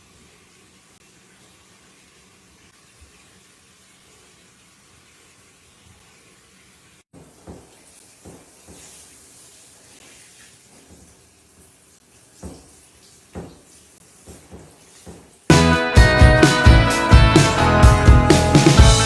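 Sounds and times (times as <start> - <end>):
soft thumps: 7.2 - 8.9, 12.4 - 12.8, 13.4 - 15.4.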